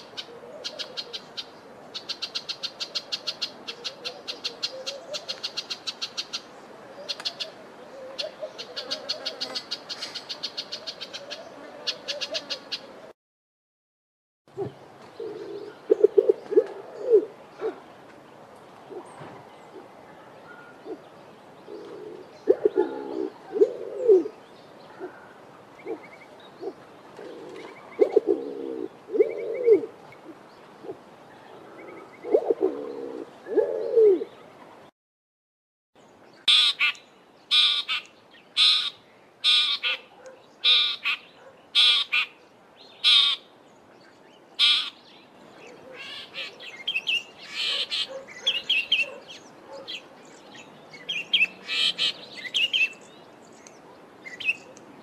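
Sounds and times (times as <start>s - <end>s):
pigeon cooing: 0.0s - 1.3s, 2.8s - 5.4s, 6.9s - 12.9s, 14.6s - 17.8s, 21.7s - 24.3s, 24.9s - 31.0s, 31.6s - 34.3s
bird chattering call: 36.4s - 42.3s, 44.6s - 45.0s.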